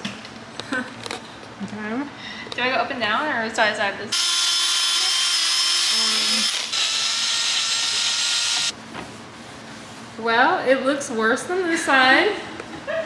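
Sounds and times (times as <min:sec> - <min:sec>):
cordless drill whine: 0:04.1 - 0:08.7.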